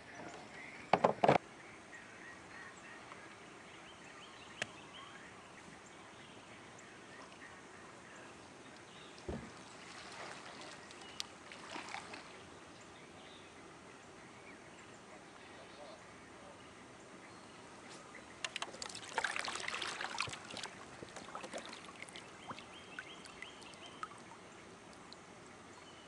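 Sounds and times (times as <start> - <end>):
faint lake ambience: 0.0 - 26.0
dull thump: 9.2 - 9.6.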